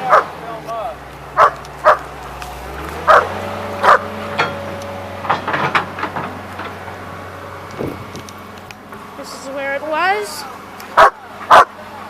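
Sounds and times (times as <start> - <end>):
excavator diesel engine running: 0.0 - 12.0
dog barking: 0.1 - 0.3, 1.4 - 2.1, 3.1 - 4.1, 11.0 - 11.7.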